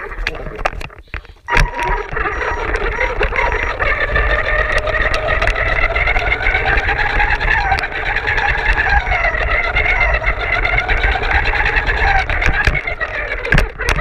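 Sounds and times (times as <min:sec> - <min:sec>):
small clicks: 0:00.0 - 0:07.9
electric motor whining: 0:01.5 - 0:14.0.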